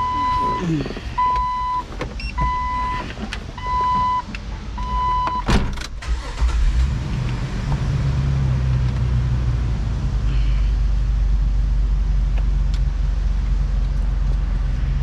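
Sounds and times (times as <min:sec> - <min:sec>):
warning chime beeps: 0:00.0 - 0:03.0
car engine idling: 0:00.0 - 0:05.1, 0:06.0 - 0:15.0.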